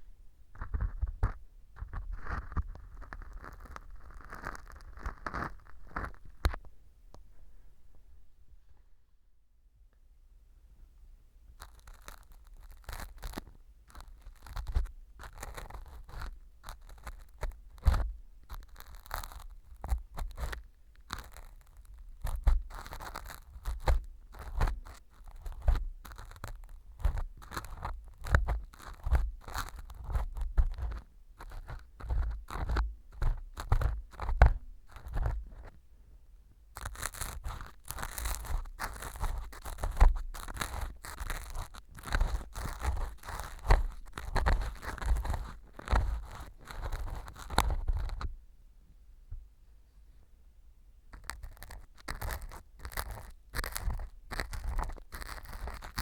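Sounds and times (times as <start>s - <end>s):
earpick scraping and crackling: 0.6s - 6.7s, 11.5s - 35.8s, 36.7s - 48.3s, 51.1s - 56.0s.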